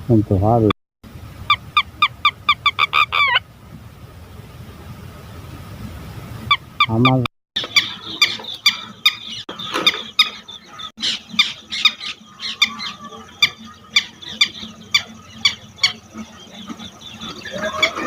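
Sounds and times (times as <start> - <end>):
lapwing shrill alarm calls: 1.5 - 3.4, 7.6 - 18.0.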